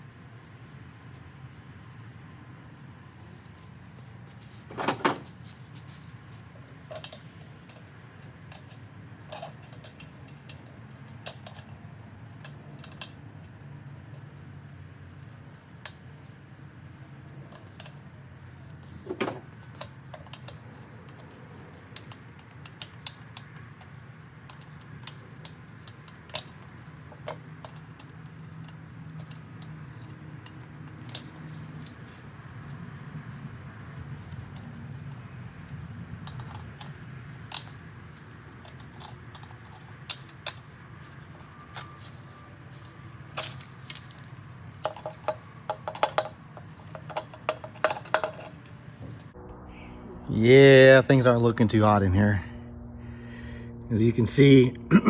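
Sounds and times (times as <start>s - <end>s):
metal engine parts clinking: 4.3s - 11.8s, 38.5s - 48.9s
steady low hum: 48.3s - 55.0s.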